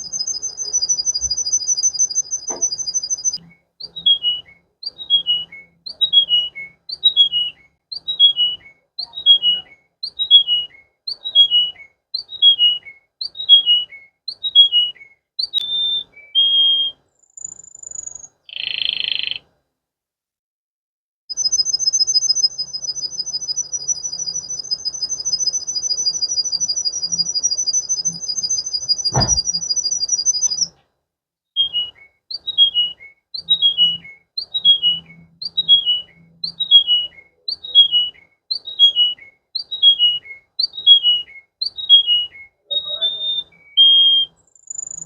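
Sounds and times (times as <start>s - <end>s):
canary warbling trill: 0.0s - 12.8s, 41.8s - 44.2s
canary falling whistled notes: 0.0s - 19.4s, 21.3s - 30.8s, 31.6s - 45.0s
thump: 2.5s - 2.8s, 29.1s - 29.6s.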